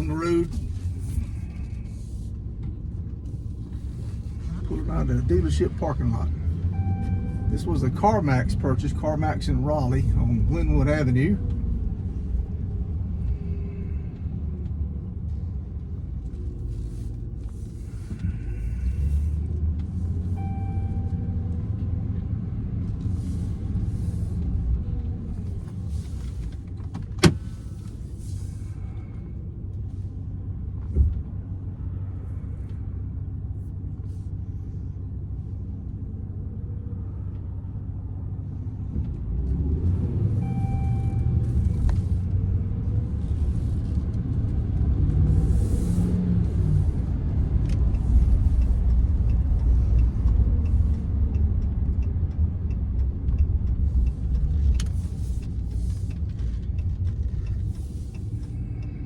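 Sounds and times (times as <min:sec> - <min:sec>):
engine and road rumble: 0:00.0 - 0:59.0.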